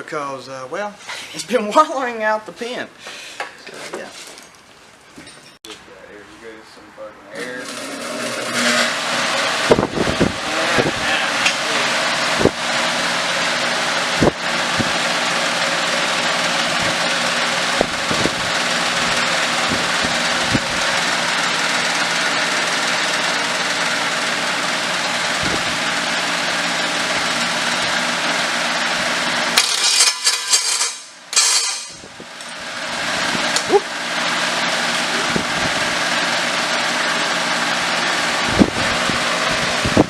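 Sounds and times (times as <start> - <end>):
exhaust cracks: 7.3 - 30.1
engine idling: 7.5 - 29.8, 31.8 - 40.0.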